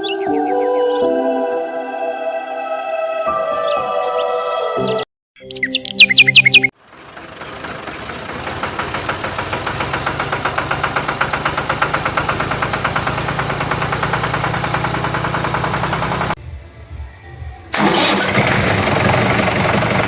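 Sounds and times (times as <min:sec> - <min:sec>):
engine idling with rapid pulsing: 0:06.8 - 0:16.4, 0:17.7 - 0:20.0.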